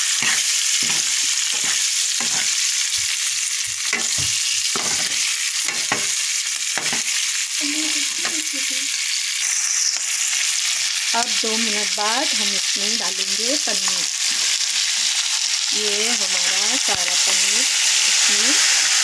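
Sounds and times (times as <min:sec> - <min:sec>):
vegetables sizzling in hot oil: 0:00.0 - 0:19.0
metal ladle scraping pan: 0:00.2 - 0:02.6.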